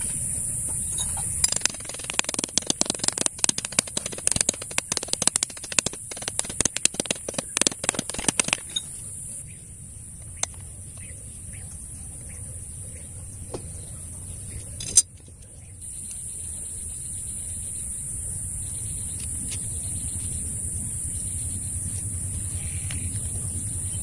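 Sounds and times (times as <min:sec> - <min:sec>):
crackling and clicking: 0:01.4 - 0:08.8.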